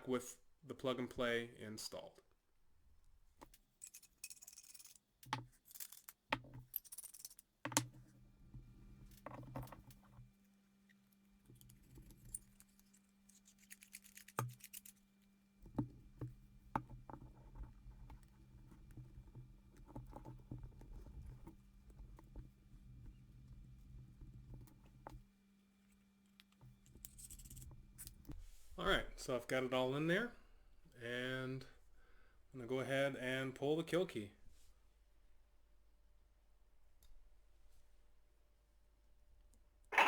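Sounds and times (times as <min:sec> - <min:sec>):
metal parts clicking and rustling: 0:03.8 - 0:07.8, 0:11.5 - 0:15.1.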